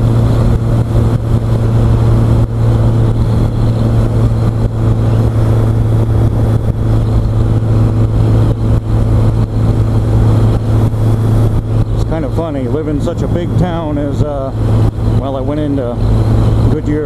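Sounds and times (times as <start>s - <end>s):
motorcycle engine cruising: 0.0s - 17.0s
rushing wind noise: 0.0s - 17.0s.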